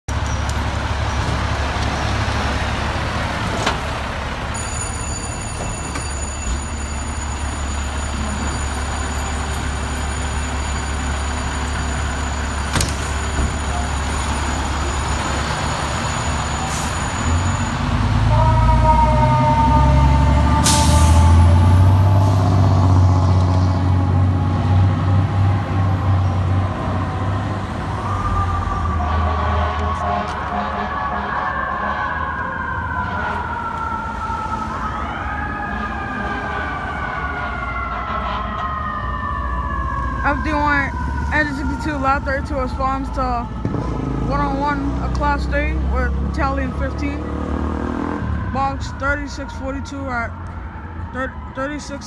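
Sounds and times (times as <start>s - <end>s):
diesel engine idling and revving: 0.1s - 52.0s
air brakes hissing: 16.1s - 17.7s, 20.6s - 21.5s.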